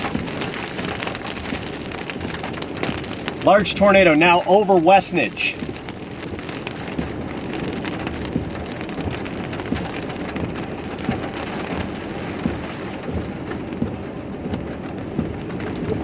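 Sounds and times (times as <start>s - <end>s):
heavy rain falling: 0.0s - 16.0s
raindrops tapping a surface: 0.0s - 16.0s.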